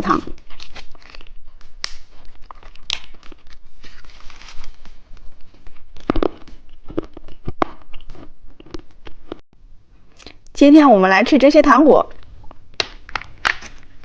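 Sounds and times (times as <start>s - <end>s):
plastic wrappers crinkling: 0.3s - 6.5s, 12.2s - 14.0s.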